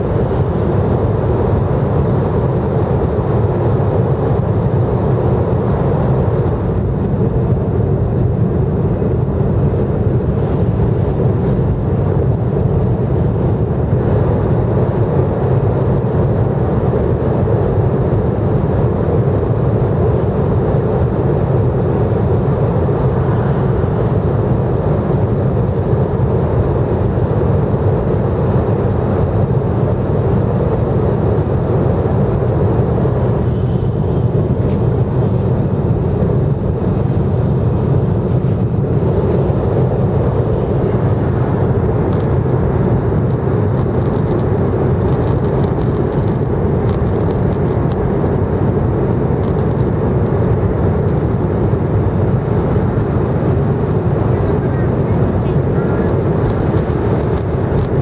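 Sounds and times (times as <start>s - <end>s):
train running in tunnel: 0.0s - 47.3s, 48.1s - 57.5s.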